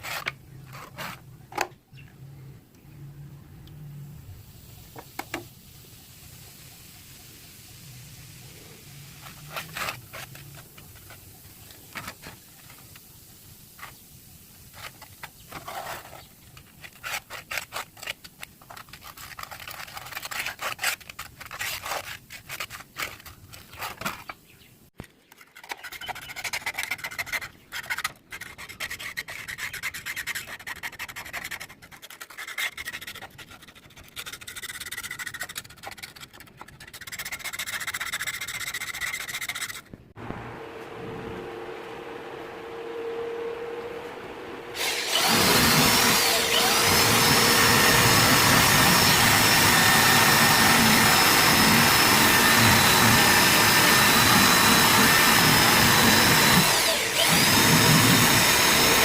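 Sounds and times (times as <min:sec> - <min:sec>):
hand scraping saw blade: 0:00.0 - 0:01.2, 0:09.2 - 0:12.9, 0:14.7 - 0:24.4, 0:25.2 - 0:39.9, 0:44.8 - 0:59.0.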